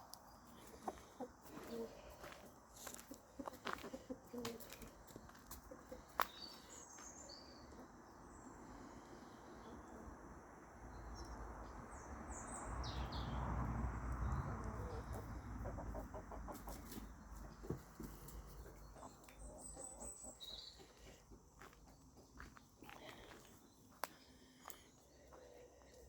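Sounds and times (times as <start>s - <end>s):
chickens clucking softly: 0.6s - 6.8s, 14.6s - 21.0s.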